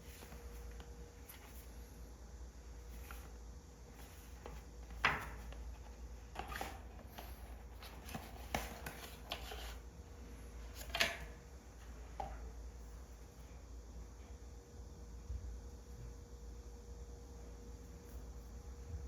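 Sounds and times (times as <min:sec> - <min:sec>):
soft handling sounds: 0:00.0 - 0:13.6.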